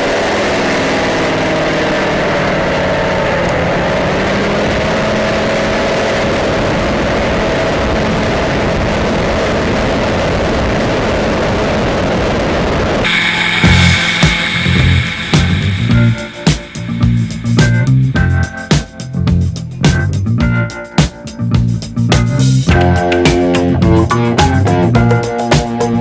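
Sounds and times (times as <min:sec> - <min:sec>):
motorcycle engine running: 0:00.0 - 0:09.1, 0:13.0 - 0:25.1
music: 0:13.0 - 0:26.0.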